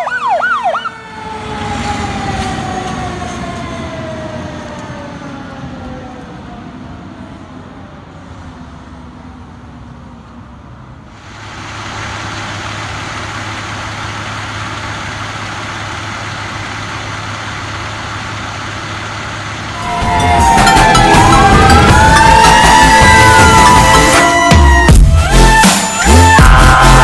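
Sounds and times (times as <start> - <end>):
fire engine siren: 0.0 - 9.4, 11.2 - 27.0
truck engine and road noise: 0.0 - 27.0
music: 19.8 - 27.0.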